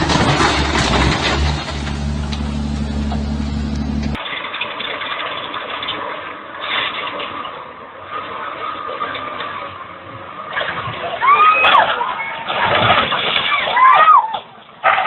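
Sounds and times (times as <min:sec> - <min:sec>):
heavy machine engine running: 0:00.0 - 0:06.0.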